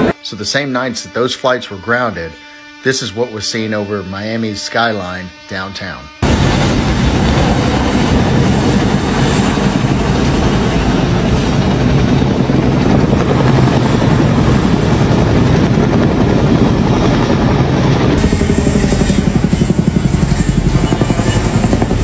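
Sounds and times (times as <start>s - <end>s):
helicopter flying overhead: 6.2s - 22.0s.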